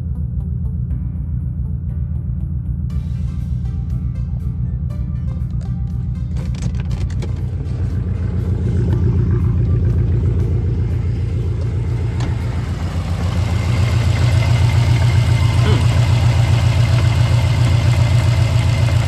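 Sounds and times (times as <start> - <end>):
car engine idling: 5.3 - 19.0.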